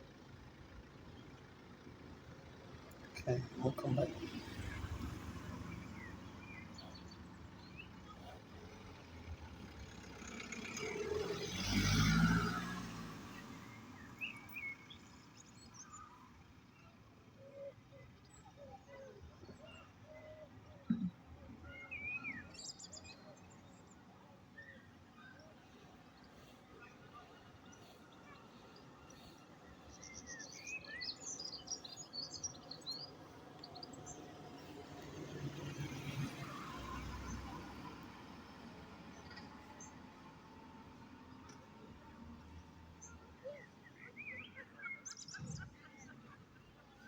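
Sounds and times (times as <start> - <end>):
faint outdoor background noise: 0.0 - 47.0
small birds twittering: 2.9 - 10.0, 10.6 - 47.0
motor vehicle passing: 3.0 - 15.4, 25.6 - 43.0.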